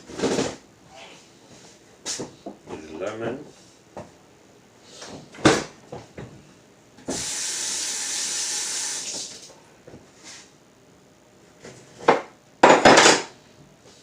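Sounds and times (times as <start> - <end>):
tap water running into sink: 7.1 - 9.4.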